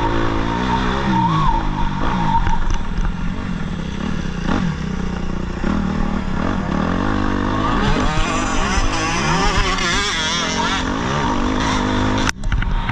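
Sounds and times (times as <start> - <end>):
motocross bike engine revving: 0.0 - 12.9.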